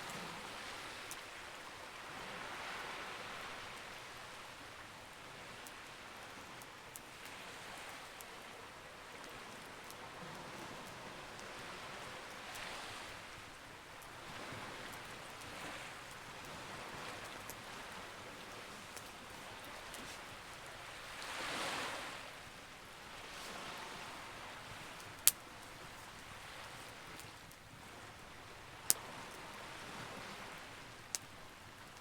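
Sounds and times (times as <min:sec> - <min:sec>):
sea waves: 0:00.0 - 0:32.0
campfire crackling and popping: 0:13.5 - 0:21.2, 0:24.6 - 0:29.2, 0:30.7 - 0:32.0.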